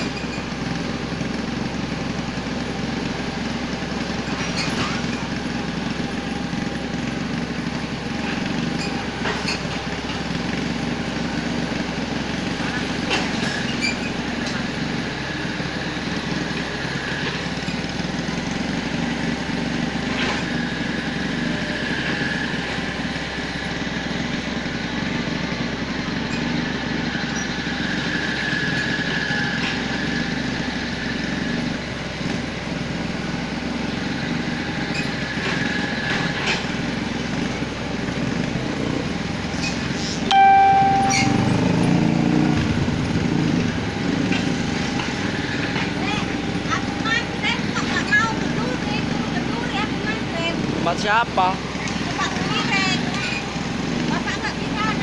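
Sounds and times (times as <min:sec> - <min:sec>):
short pitched beep: 0:40.3 - 0:42.2.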